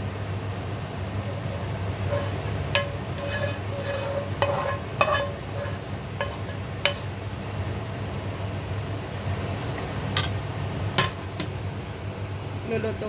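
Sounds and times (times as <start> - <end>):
steady low hum: 0.0 - 13.0
metal utensil scraping a pan: 1.2 - 7.1.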